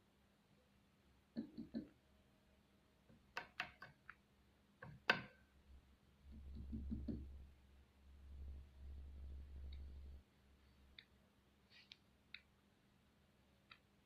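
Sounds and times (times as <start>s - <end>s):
beetle tapping on wood: 6.5s - 7.3s.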